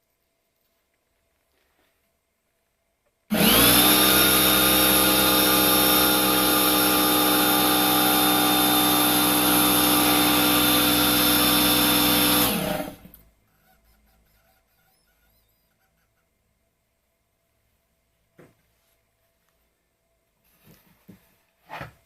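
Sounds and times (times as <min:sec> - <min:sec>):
electric air compressor running: 0:03.3 - 0:13.1.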